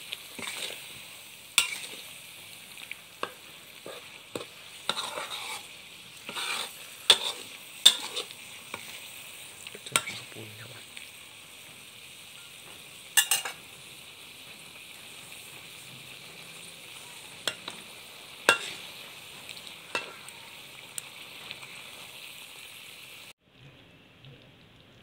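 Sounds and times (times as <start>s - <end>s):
food sizzling in metal wok: 0.0s - 23.4s
metal spatula scraping pan: 0.3s - 1.0s, 1.6s - 2.2s, 3.2s - 9.0s, 9.8s - 10.4s, 13.2s - 13.6s, 16.9s - 19.0s, 19.9s - 20.3s.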